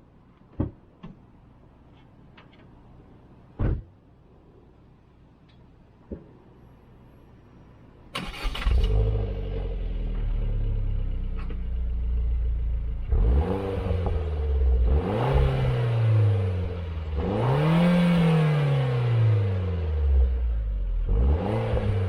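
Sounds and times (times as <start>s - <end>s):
car engine starting and idling: 8.1s - 22.0s
car engine revving: 8.3s - 22.0s.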